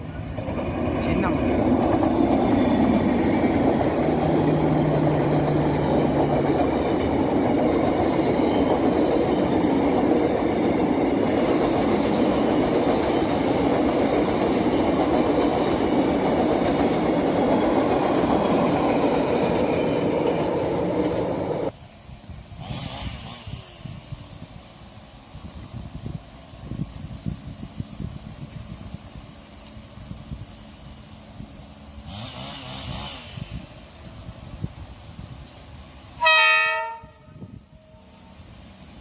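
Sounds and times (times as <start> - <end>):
train wheels clattering on rails: 0.0 - 21.7.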